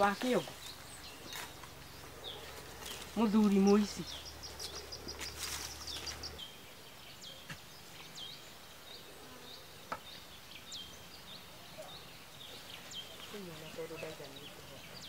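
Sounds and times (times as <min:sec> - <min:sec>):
bird ticking trill: 0:00.0 - 0:07.2.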